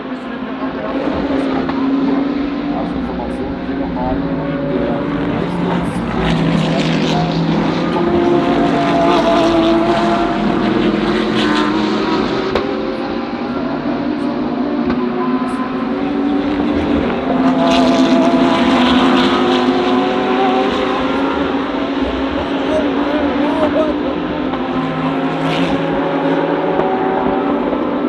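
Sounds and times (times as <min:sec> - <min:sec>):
race car engines at full throttle: 0:00.0 - 0:28.0.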